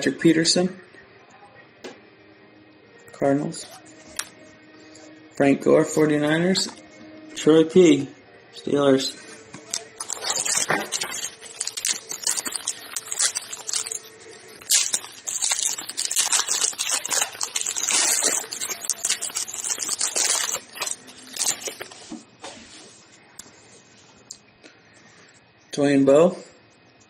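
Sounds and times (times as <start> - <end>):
cards being handled: 9.5 - 22.2
wrapper tearing and crinkling: 9.7 - 22.1.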